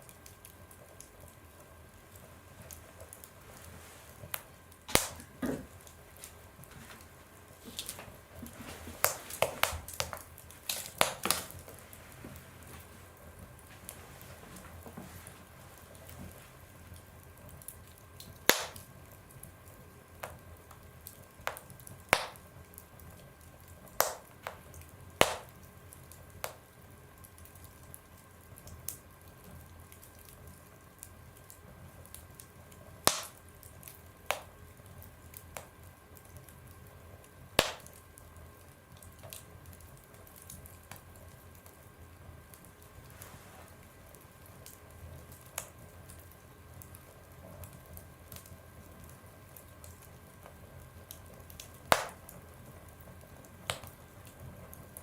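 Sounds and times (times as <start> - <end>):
wood fire crackling: 0.0 - 55.0
loud fire pops: 4.3 - 5.9, 7.6 - 11.8, 18.2 - 19.0, 21.4 - 22.8, 23.9 - 25.7, 33.0 - 34.6, 37.6 - 38.1, 51.1 - 52.4, 53.6 - 54.1.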